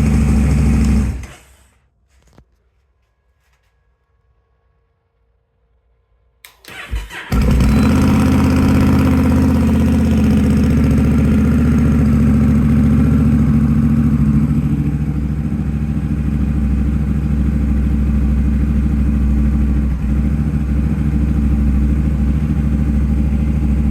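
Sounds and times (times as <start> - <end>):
motorcycle engine idling: 0.0 - 1.2, 7.2 - 23.9
electric starter cranking: 6.5 - 9.5.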